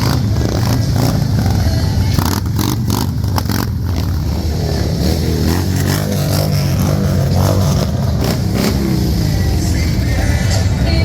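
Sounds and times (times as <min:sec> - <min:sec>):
motorcycle engines rumbling: 0:00.0 - 0:11.0
music playing: 0:00.0 - 0:11.0.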